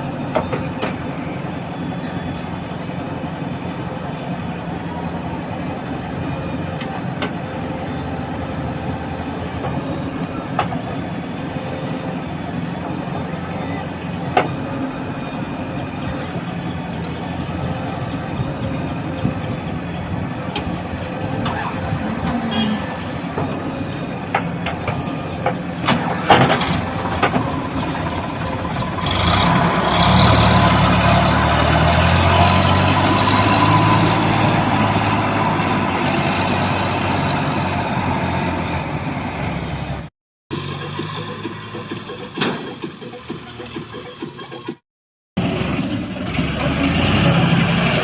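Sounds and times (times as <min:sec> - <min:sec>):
diesel machinery engine running: 0:00.0 - 0:44.8, 0:45.4 - 0:48.0
metal clanks and knocks: 0:40.8 - 0:44.8.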